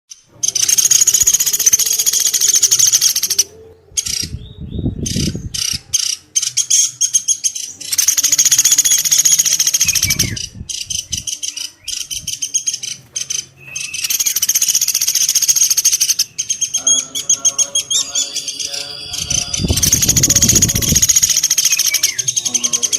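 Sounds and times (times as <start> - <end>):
woodpecker rattling trills: 0.1 - 4.4, 5.1 - 22.9
woodpecker call notes: 0.1 - 22.9.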